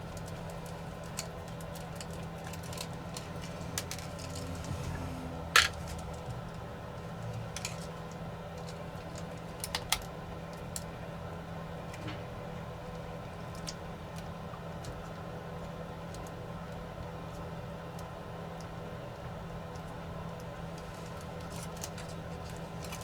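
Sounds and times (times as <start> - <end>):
steady low hum: 0.0 - 23.0
small tools clicking and tapping: 0.2 - 4.5.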